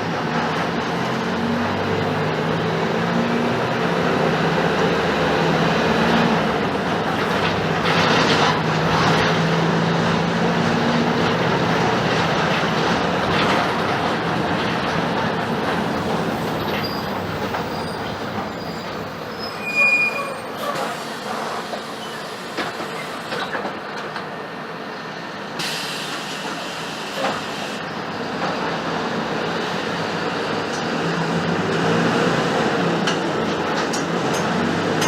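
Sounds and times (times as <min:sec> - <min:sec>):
bus engine and road noise: 0:00.0 - 0:35.0
bus body rattles: 0:04.2 - 0:21.6, 0:30.7 - 0:35.0
brief high squeal: 0:16.7 - 0:23.3.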